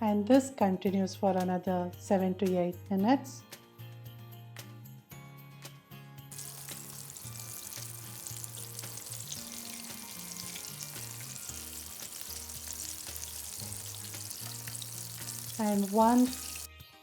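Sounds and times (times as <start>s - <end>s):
chicken sizzling in hot oil: 6.3s - 16.7s.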